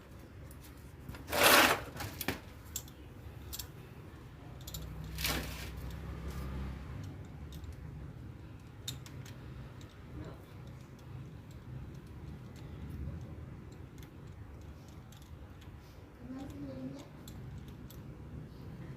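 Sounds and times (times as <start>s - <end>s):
plastic parts scraping: 1.1s - 2.4s.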